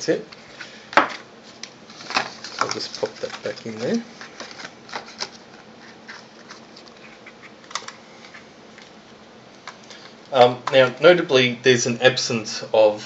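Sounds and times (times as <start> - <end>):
paper and cardboard rustling: 1.4 - 8.9.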